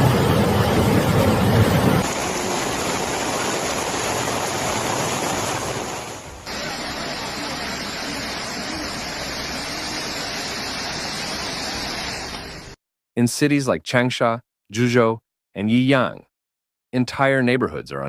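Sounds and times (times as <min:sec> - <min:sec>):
rushing floodwater: 0:00.0 - 0:12.8.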